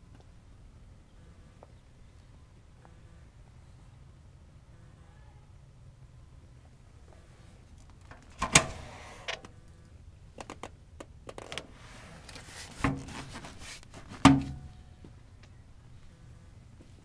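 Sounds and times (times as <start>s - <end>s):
sharp knocks and clunks: 14.2s - 14.7s.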